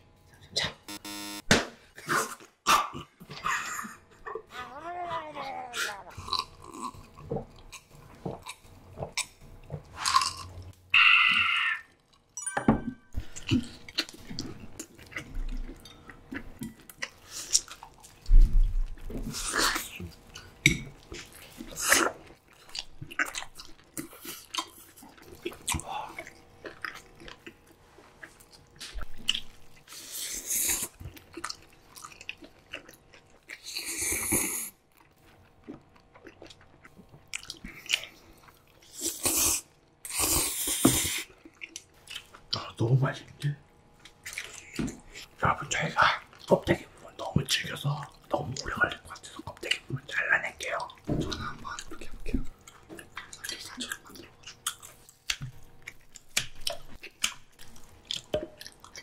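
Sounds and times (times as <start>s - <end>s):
wet chewing and biting: 13.2s - 29.9s, 30.7s - 39.4s, 50.8s - 59.0s
slurping noodles: 38.8s - 41.3s.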